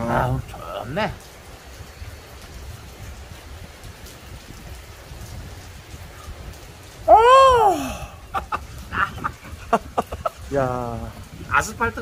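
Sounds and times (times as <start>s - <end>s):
heavy rain falling: 0.0s - 12.0s
man exclaiming oh: 7.0s - 8.5s.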